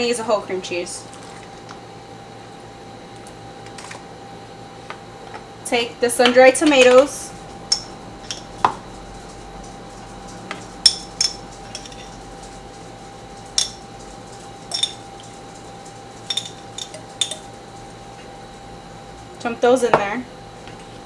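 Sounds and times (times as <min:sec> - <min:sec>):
faint steady hum: 0:00.0 - 0:21.0
metal utensil clinking dishes: 0:06.6 - 0:18.2.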